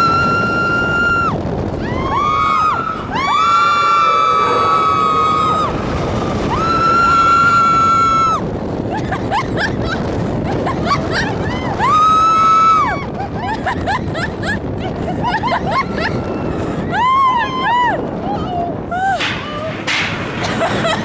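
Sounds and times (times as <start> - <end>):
riders screaming and shrieking: 0.0 - 8.8
roller coaster train rumbling: 0.0 - 21.0.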